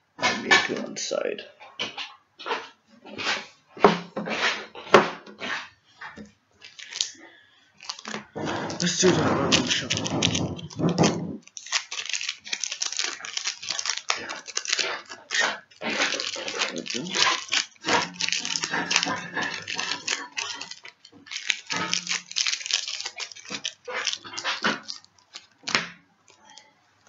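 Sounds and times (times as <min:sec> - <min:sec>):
foil wrappers crinkling: 0:06.1 - 0:27.0.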